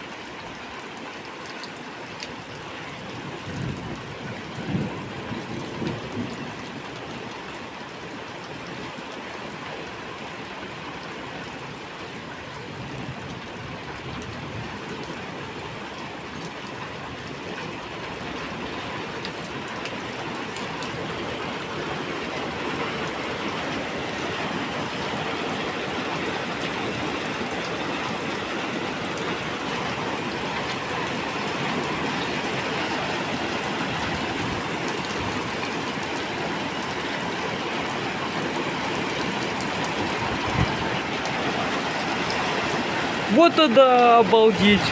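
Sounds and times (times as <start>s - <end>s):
heavy rain pouring: 10.0s - 44.9s.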